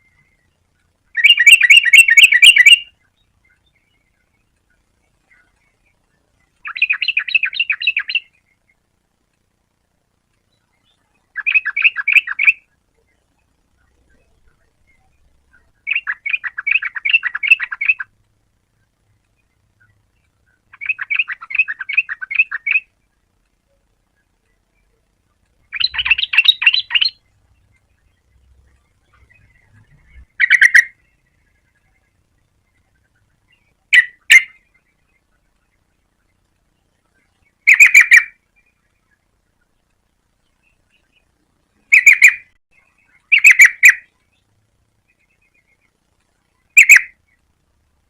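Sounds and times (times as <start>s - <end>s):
bird singing bubbling phrases: 0.0s - 8.9s, 10.5s - 18.2s, 19.3s - 23.1s, 24.1s - 39.8s, 40.5s - 47.4s.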